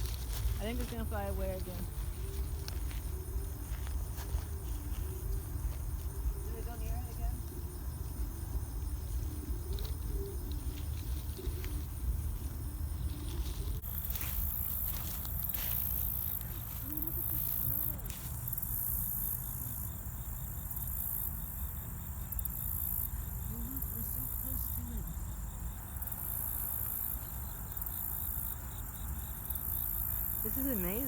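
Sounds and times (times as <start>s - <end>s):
insects chirping and trilling: 0.0s - 31.0s.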